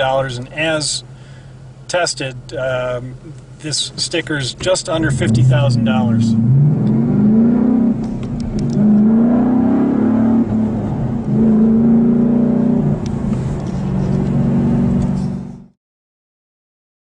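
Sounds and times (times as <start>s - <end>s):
car engine accelerating: 4.6s - 15.7s.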